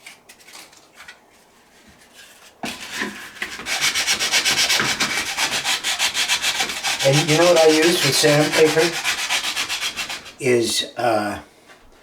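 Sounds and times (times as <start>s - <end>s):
sandpaper scratching on gourd: 2.6s - 10.4s.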